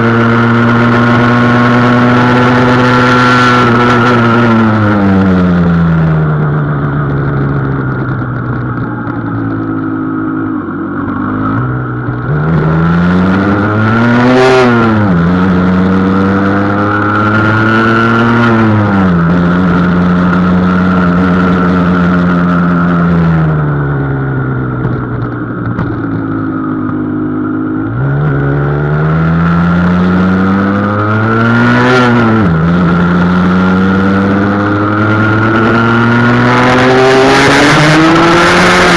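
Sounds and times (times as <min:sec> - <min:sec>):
two-stroke engine revving: 0:27.8 - 0:38.9.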